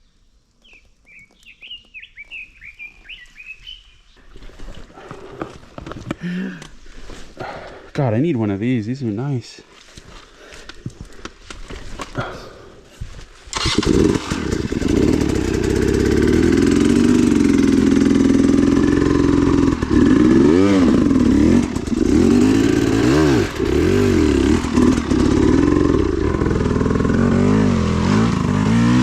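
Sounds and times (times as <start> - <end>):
dirt bike engine revving: 13.5 - 29.0.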